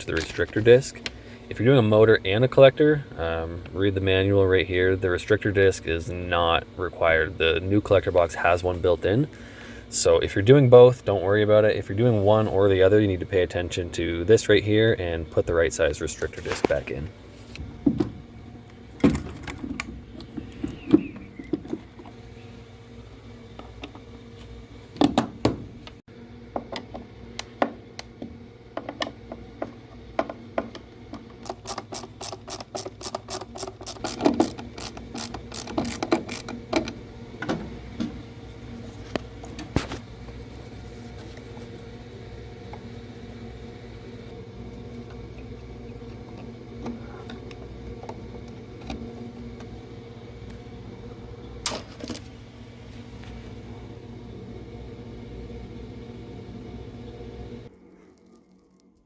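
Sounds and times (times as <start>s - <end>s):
steady low hum: 0.0s - 59.0s
knocks and clatters of parts: 19.0s - 22.2s, 28.7s - 38.2s
ratchet clicking: 31.4s - 36.6s.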